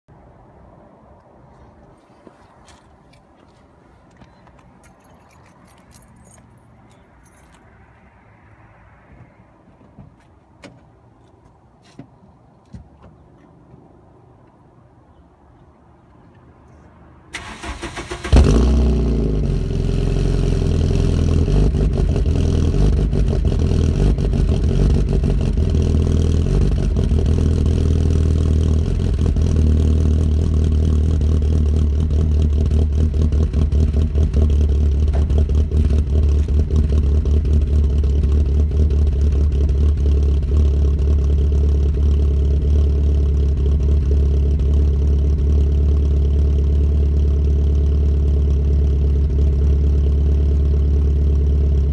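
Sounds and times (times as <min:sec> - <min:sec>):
car engine idling with exhaust rumble: 0:18.5 - 0:51.9.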